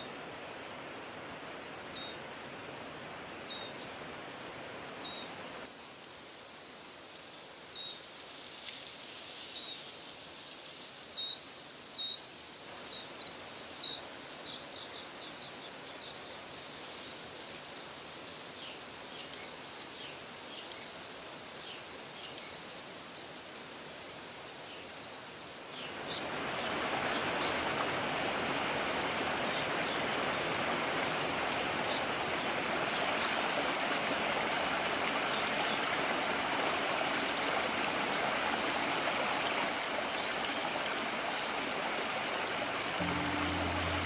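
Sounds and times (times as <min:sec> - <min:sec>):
rushing outdoor background noise: 0:42.7 - 0:44.0.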